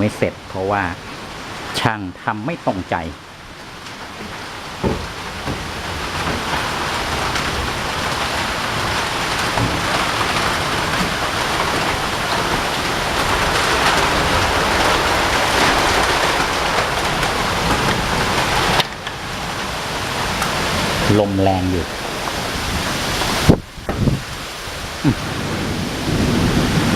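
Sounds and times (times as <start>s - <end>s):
heavy rain pouring: 0.0s - 26.9s.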